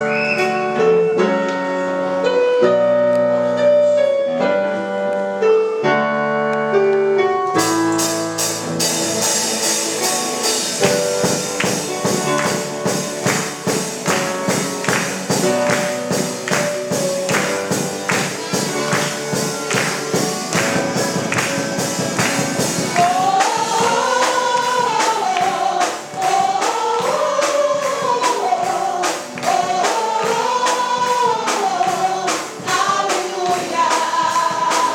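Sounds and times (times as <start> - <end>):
sustained keyboard chords: 0.6 - 34.9
band with drums and tambourine: 7.6 - 34.9
voices singing: 9.2 - 34.9.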